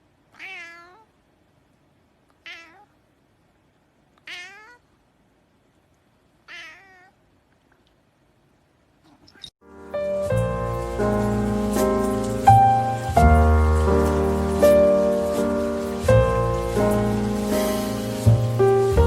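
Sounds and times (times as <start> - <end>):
cat meowing: 0.3 - 1.1, 2.4 - 3.0, 4.2 - 4.9, 6.4 - 7.2.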